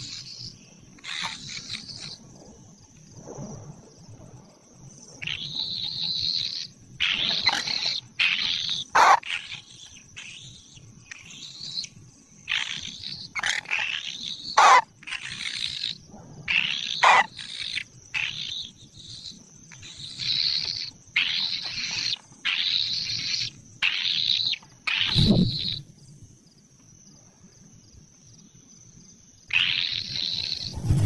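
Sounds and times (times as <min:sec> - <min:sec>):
nestlings rasping begging calls: 0:07.0 - 0:11.8, 0:12.5 - 0:25.8.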